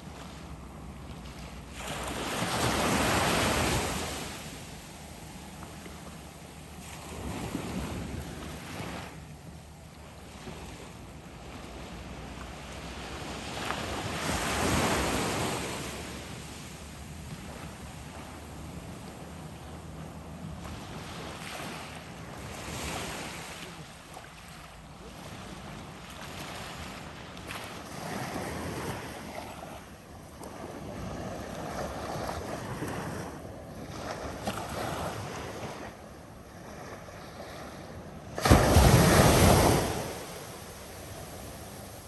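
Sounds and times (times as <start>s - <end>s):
ocean surf washing: 0.0s - 24.2s, 36.6s - 42.0s
wind on microphone: 6.8s - 9.2s.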